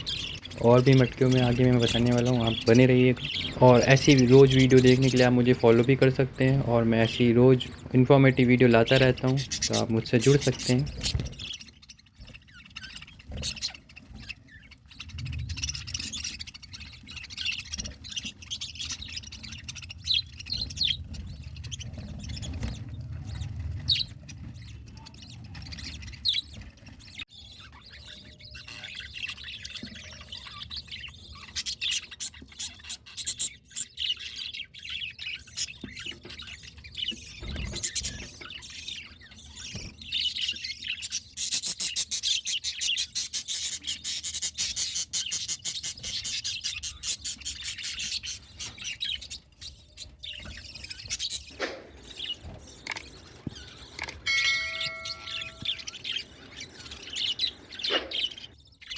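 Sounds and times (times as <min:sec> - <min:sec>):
budgerigars chirping and chattering: 0:00.0 - 0:58.9.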